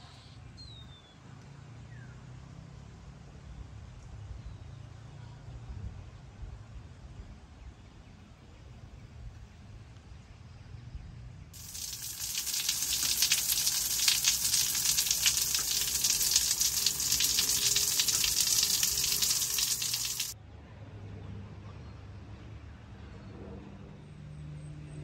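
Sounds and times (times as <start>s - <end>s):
food sizzling in a pan: 11.6s - 20.4s.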